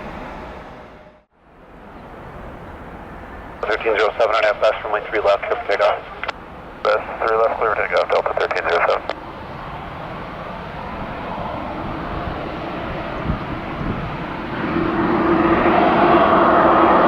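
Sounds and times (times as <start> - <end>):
rising engine whine: 0.0 - 17.0
jet engines spooling up: 3.6 - 17.0.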